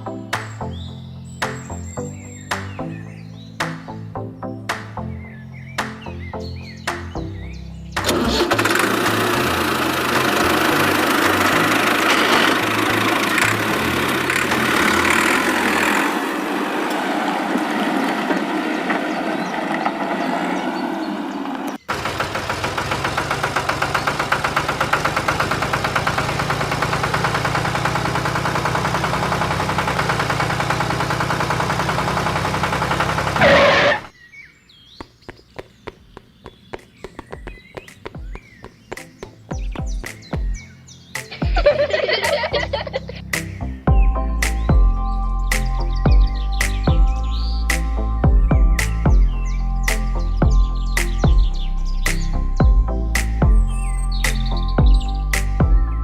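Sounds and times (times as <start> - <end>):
music: 0.0 - 8.5, 39.0 - 40.6, 41.2 - 56.0
engine running loudly: 8.0 - 34.1.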